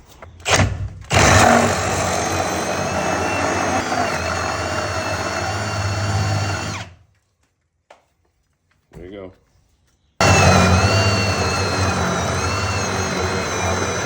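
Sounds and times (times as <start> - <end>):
power drill cutting into wood: 0.4 - 7.0, 10.2 - 14.0.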